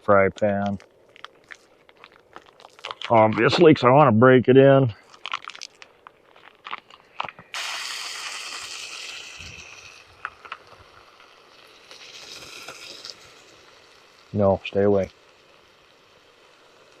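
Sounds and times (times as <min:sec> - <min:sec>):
steak sizzling in a pan: 0:07.5 - 0:17.0.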